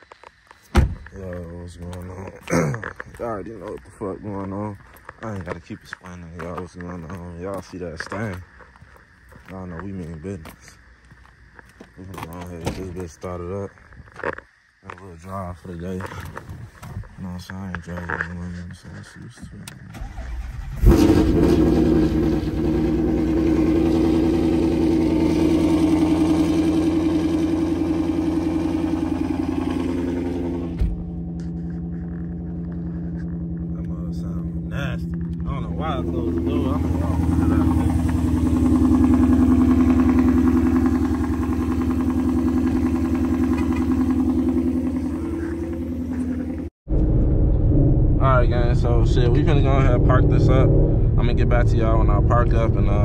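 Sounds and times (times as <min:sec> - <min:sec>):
car engine idling: 0:20.0 - 0:47.4, 0:48.2 - 0:53.0.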